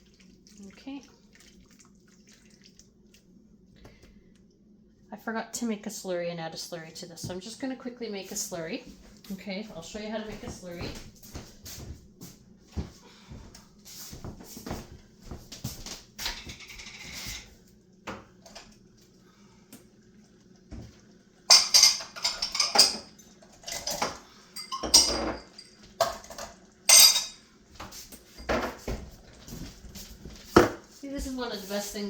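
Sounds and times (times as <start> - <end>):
dishes and cutlery clattering: 16.2 - 17.5, 21.5 - 27.4, 28.4 - 29.0.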